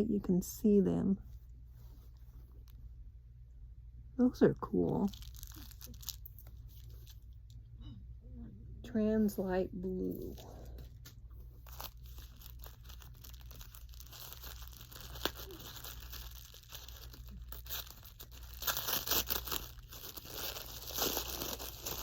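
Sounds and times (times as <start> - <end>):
packaging crinkling and tearing: 4.9 - 7.6, 10.1 - 22.0.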